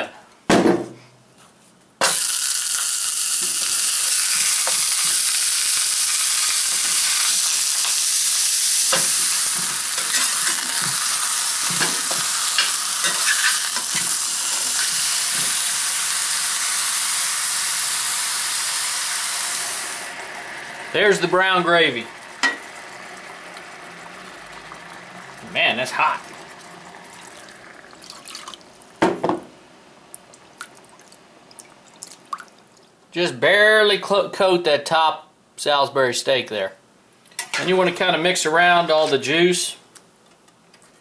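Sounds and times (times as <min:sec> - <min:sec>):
meat sizzling in a skillet: 0:02.0 - 0:29.0
metal spatula scraping a pan: 0:11.7 - 0:14.1.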